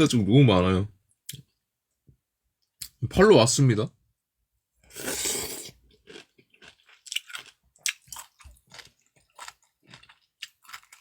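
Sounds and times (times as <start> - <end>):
person chewing food: 4.9 - 11.0.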